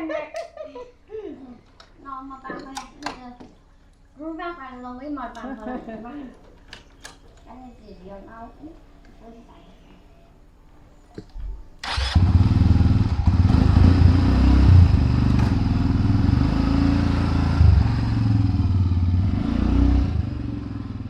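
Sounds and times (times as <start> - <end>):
vehicle engine starting and running: 11.8 - 21.0.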